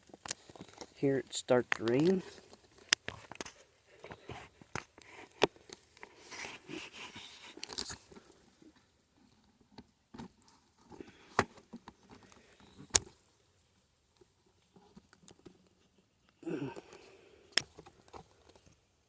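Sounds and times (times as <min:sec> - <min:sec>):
gear handling clicks and knocks: 0:00.0 - 0:08.5
rustling: 0:00.0 - 0:08.9.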